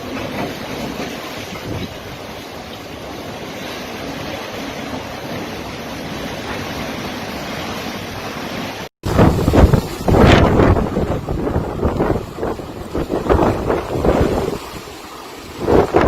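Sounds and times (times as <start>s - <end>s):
wind gusts buffeting microphone: 0.7s - 2.2s, 9.0s - 16.0s
storm wind rushing: 9.0s - 16.0s.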